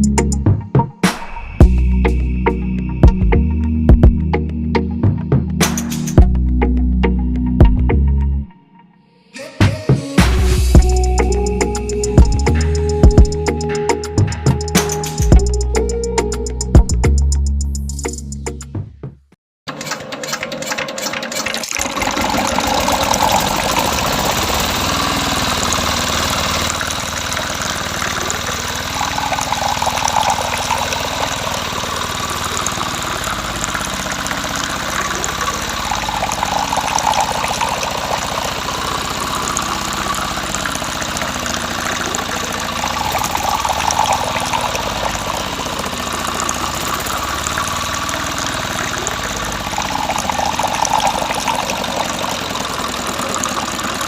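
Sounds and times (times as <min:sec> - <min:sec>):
small engine driving water pump: 0:10.8 - 0:16.6, 0:19.7 - 0:54.0
water rushing: 0:21.2 - 0:54.0.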